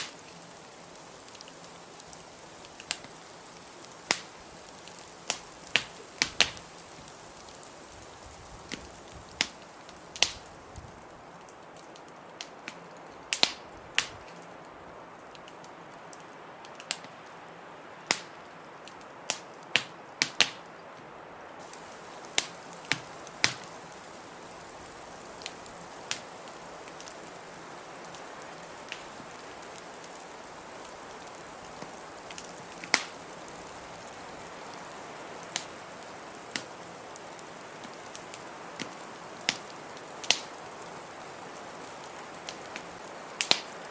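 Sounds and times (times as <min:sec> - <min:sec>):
blizzard wind hissing: 0:00.0 - 0:11.7, 0:20.8 - 0:43.9
wood fire crackling and popping: 0:00.0 - 0:17.4, 0:18.0 - 0:20.8, 0:21.5 - 0:43.9.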